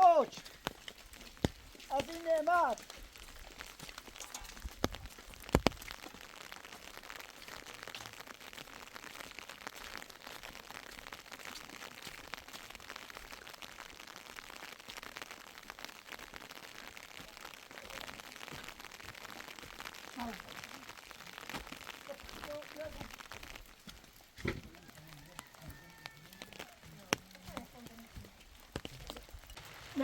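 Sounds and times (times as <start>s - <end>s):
steady rain pattering: 0.0s - 30.0s.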